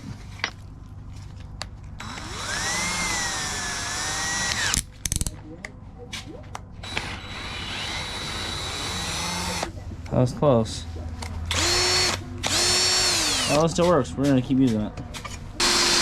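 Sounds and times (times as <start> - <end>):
electric drill whine: 2.0 - 4.8, 6.8 - 9.7, 11.5 - 13.6, 15.6 - 16.0.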